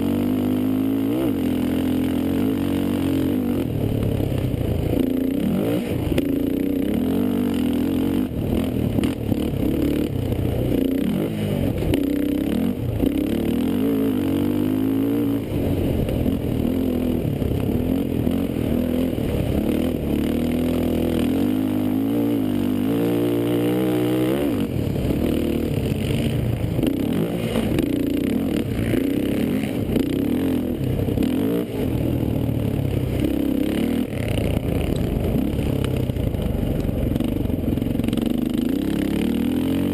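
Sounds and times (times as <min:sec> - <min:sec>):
racing quad engine revving: 0:00.0 - 0:39.9.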